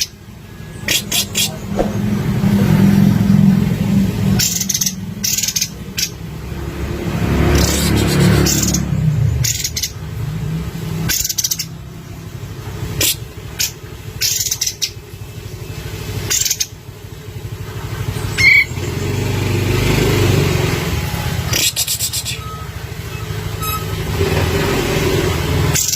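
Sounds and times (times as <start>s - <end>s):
motor vehicle engine drone: 0.0s - 25.9s
bulbul chirps: 0.8s - 2.1s, 11.1s - 11.8s, 21.5s - 22.8s.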